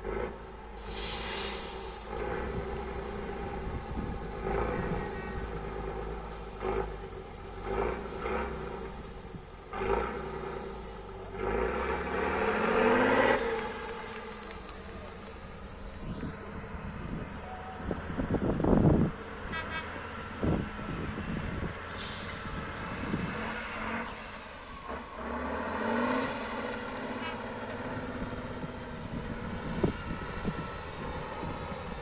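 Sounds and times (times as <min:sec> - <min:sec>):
truck diesel engine revving: 0:00.0 - 0:32.0.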